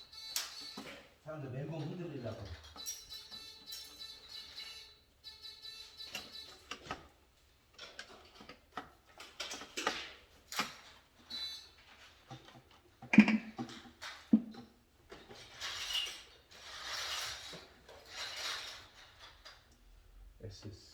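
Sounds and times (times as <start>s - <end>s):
hand tools clicking and rattling: 7.8s - 19.8s.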